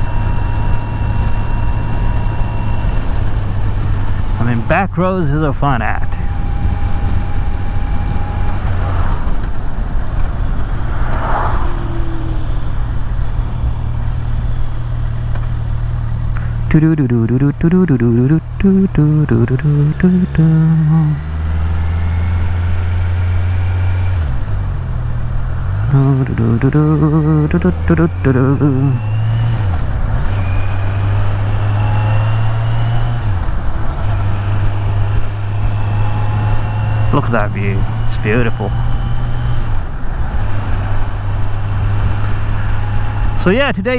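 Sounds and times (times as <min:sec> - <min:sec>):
motorcycle engine running: 0:00.0 - 0:43.9
wind rushing over microphone: 0:06.2 - 0:15.7.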